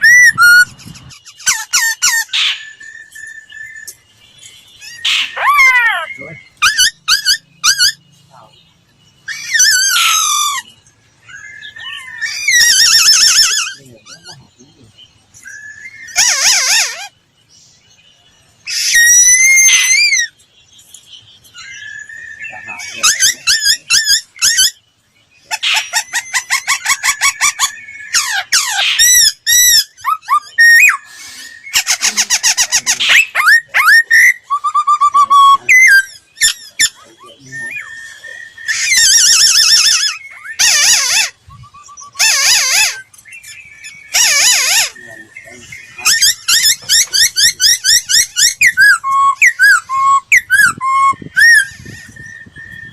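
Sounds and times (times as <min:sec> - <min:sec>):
bird singing: 0:00.0 - 0:52.9.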